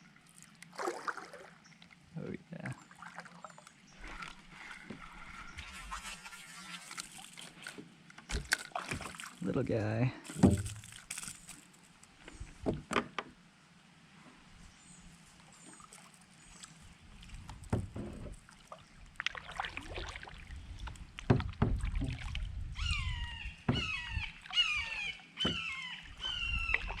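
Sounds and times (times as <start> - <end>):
knocks and handling on kayak: 7.7 - 9.3, 10.3 - 11.0, 12.3 - 13.4, 17.3 - 18.5, 20.8 - 22.5, 23.1 - 27.0
high squeaky calls: 22.8 - 27.0.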